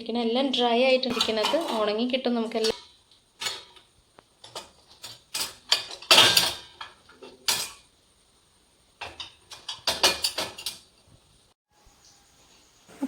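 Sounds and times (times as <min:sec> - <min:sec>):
dishes and cutlery clattering: 0:01.1 - 0:07.9, 0:09.0 - 0:11.0.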